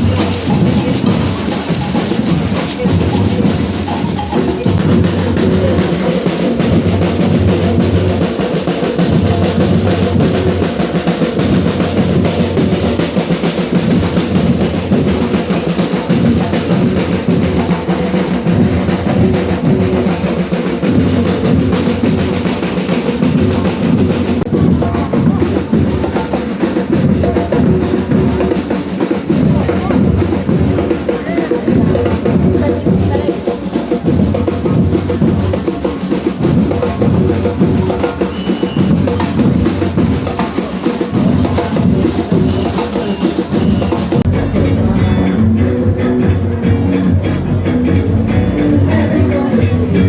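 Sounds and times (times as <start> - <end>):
snare drums: 0.0 - 45.4
drum section playing: 0.0 - 50.0
deep bass drums: 43.7 - 50.0.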